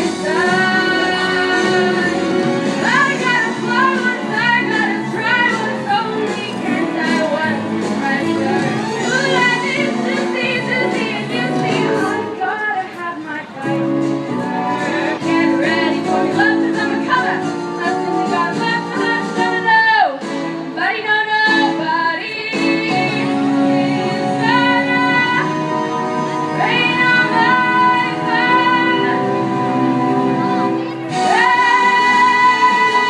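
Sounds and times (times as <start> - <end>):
musical accompaniment: 0.0 - 33.0
young choir singing: 31.2 - 33.0.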